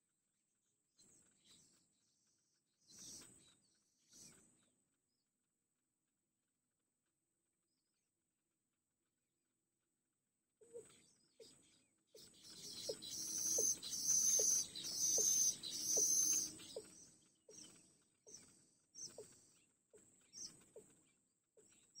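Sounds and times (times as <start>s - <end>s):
high buzzing bird chatter: 1.0s - 4.6s, 10.6s - 22.0s.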